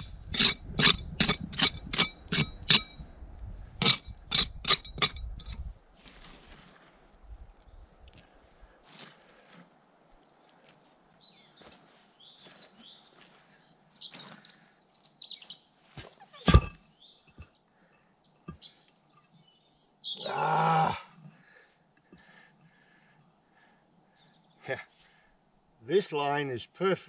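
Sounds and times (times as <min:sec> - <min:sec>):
small birds chirping: 0:10.2 - 0:20.4.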